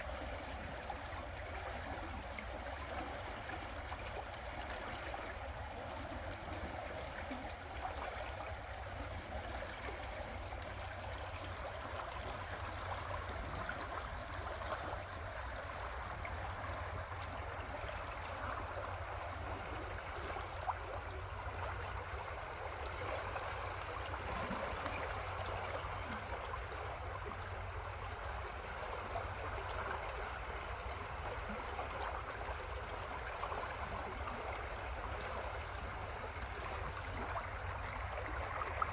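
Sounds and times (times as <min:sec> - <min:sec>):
river water flowing: 0:00.0 - 0:38.9.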